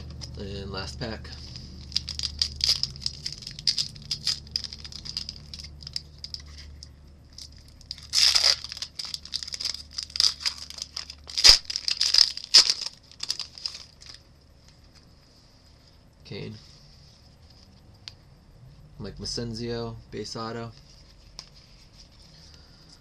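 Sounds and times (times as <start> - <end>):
wrapper crinkling: 1.4 - 14.3
wrapper ripping: 1.4 - 14.3.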